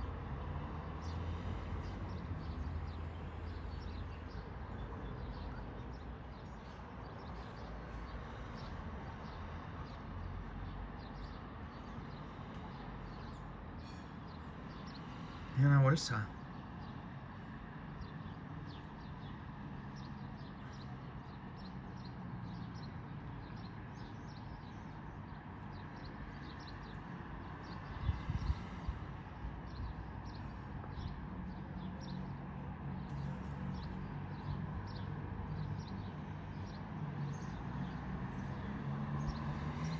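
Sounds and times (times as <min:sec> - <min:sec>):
birds chirping: 0:11.0 - 0:19.4.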